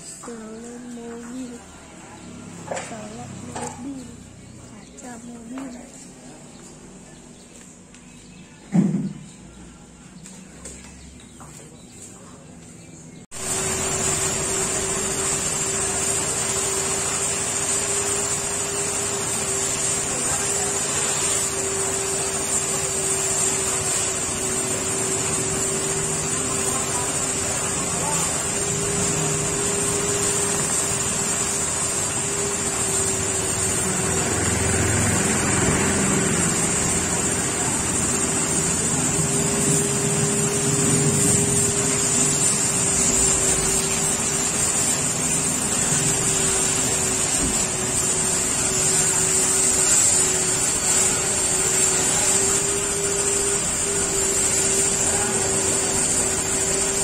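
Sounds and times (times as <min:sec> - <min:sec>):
pressure washer motor hum: 0:00.0 - 0:07.0, 0:13.3 - 0:57.0.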